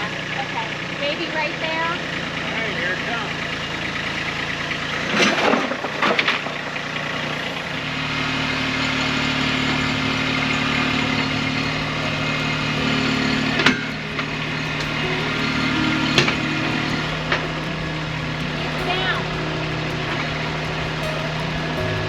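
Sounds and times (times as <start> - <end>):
tractor diesel engine running: 8.0 - 22.0.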